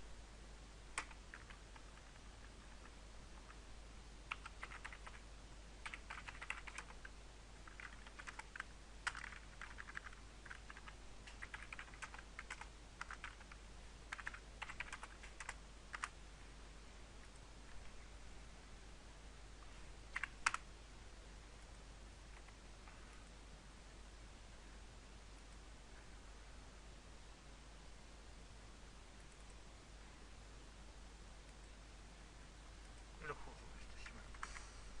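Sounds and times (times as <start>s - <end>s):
computer keyboard typing: 0.9s - 3.6s, 4.3s - 5.2s, 5.8s - 16.2s, 20.1s - 20.6s.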